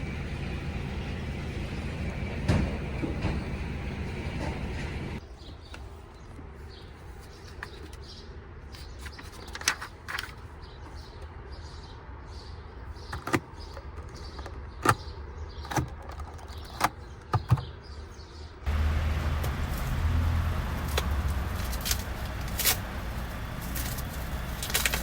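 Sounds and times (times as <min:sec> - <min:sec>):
low steady hum: 0:18.7 - 0:25.0.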